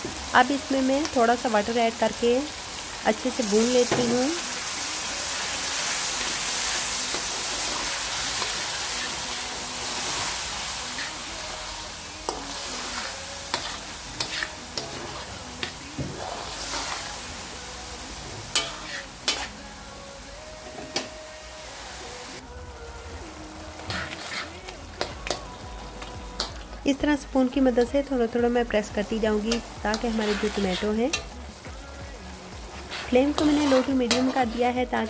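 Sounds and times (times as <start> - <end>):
masala sizzling in oil: 0.0 - 35.0.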